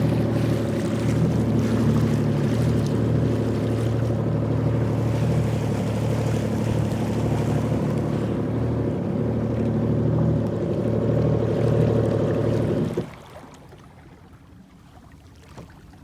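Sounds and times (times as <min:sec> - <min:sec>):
jet ski engine running: 0:00.0 - 0:14.5.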